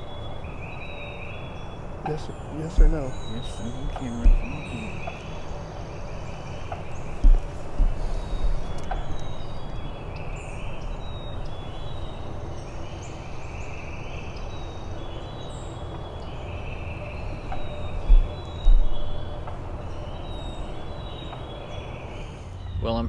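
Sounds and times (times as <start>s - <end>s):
wild birds calling: 0.0s - 22.8s
low rumble of wind: 0.0s - 23.0s
low thumps: 1.9s - 5.6s, 6.6s - 10.0s, 17.3s - 19.7s.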